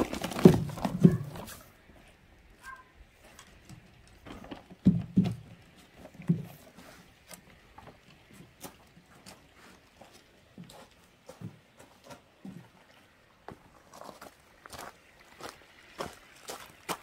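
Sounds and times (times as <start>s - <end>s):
objects knocking and clattering: 0.0s - 1.6s, 4.2s - 6.6s.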